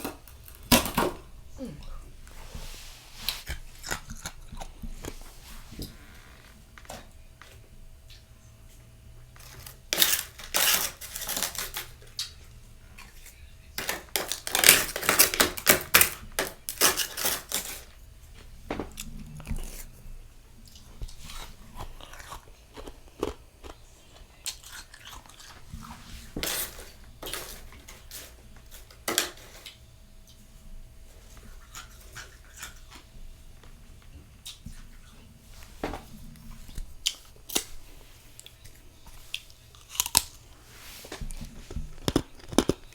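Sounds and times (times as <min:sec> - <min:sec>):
quiet chewing: 0:01.4 - 0:15.3, 0:16.6 - 0:28.9, 0:29.6 - 0:42.9
mouth crunching freezer frost: 0:09.4 - 0:12.4, 0:13.1 - 0:17.9.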